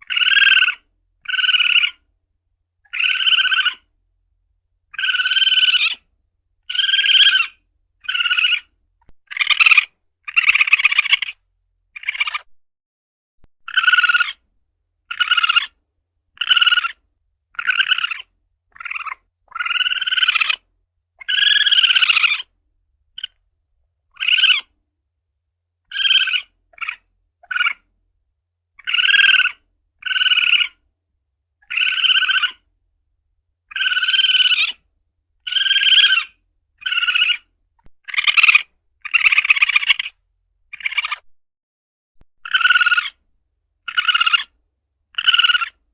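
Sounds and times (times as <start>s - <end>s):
civet high cries: 0.0s - 2.0s, 2.9s - 3.9s, 5.0s - 6.0s, 6.7s - 8.7s, 9.3s - 11.4s, 12.0s - 12.5s, 13.7s - 14.4s, 15.1s - 15.8s, 16.4s - 17.0s, 17.6s - 20.6s, 21.2s - 22.5s, 24.1s - 24.7s, 25.9s - 27.8s, 28.8s - 30.8s, 31.6s - 32.6s, 33.7s - 34.8s, 35.5s - 41.3s, 42.4s - 43.2s, 43.9s - 44.5s, 45.2s - 45.8s.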